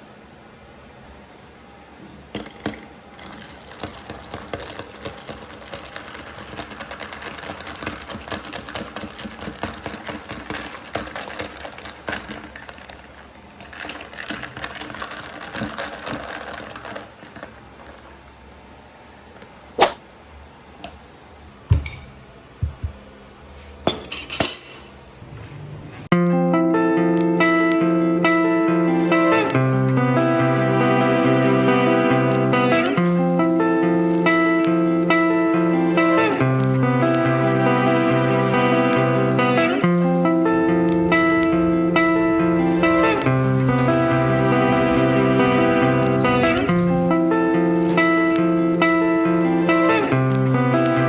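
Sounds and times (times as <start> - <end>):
bamboo whisk beating tea: 2.4 - 18.2
tableware knocks: 21.7 - 23.0, 23.9 - 25.0.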